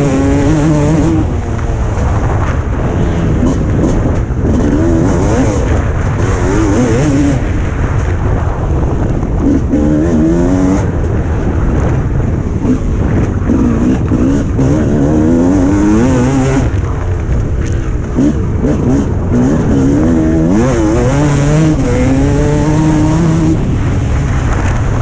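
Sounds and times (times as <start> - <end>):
motocross engine revving: 0.0 - 2.4, 3.2 - 7.6, 9.4 - 11.0, 12.6 - 16.8, 18.1 - 25.0.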